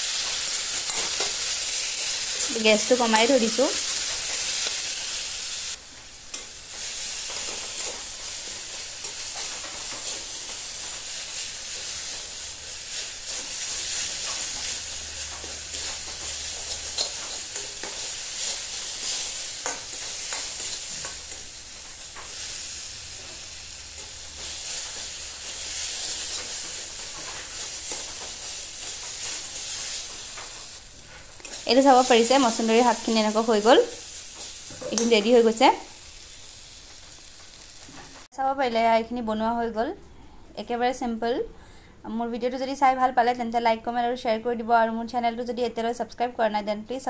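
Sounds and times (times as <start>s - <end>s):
metal spoon scraping the pan: 0.0s - 5.5s, 6.3s - 35.5s
leaves sizzling in oil: 0.0s - 38.3s.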